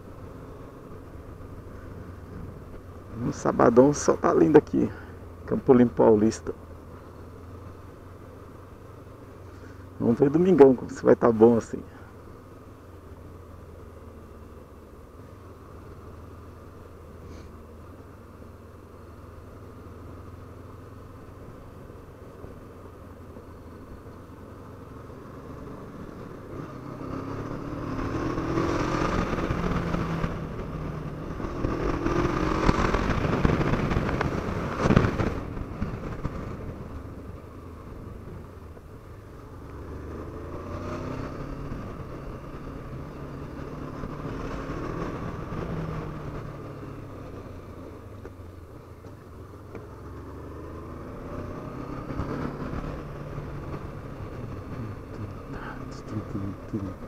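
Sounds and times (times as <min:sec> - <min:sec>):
motorcycle engine revving: 0:23.2 - 0:57.0.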